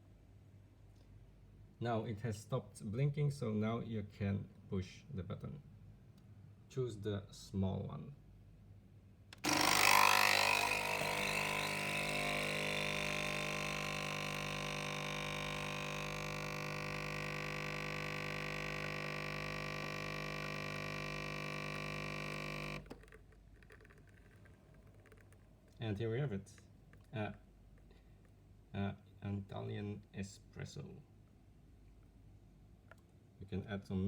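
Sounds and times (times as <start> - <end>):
coffee machine pump humming: 9.4 - 25.8.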